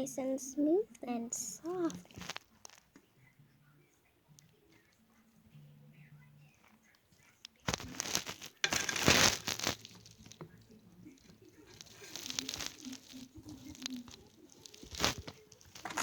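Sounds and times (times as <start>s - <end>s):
plastic packaging crinkling: 1.6s - 2.9s, 7.6s - 16.0s.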